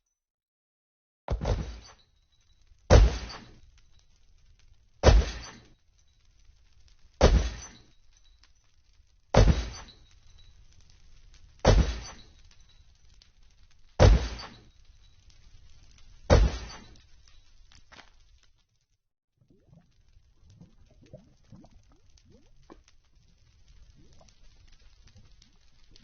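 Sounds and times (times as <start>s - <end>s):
loud crashing impacts with ringing: 1.3s - 2.1s, 2.9s - 3.6s, 5.0s - 5.8s, 7.2s - 7.9s, 9.4s - 10.5s, 11.6s - 12.8s, 14.0s - 14.7s, 16.3s - 17.0s.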